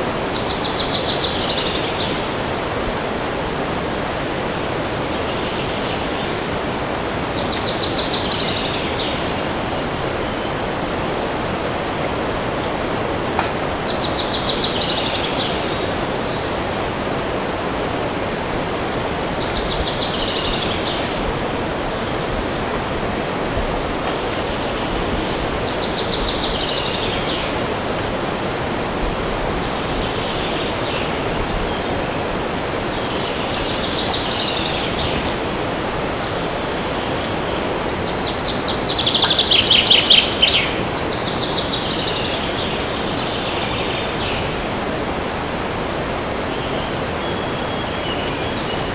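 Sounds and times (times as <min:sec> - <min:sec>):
wind through trees: 0:00.0 - 0:48.9
songbird trilled song: 0:13.4 - 0:16.6, 0:24.0 - 0:27.7, 0:29.6 - 0:31.9, 0:32.9 - 0:44.7, 0:46.5 - 0:48.9.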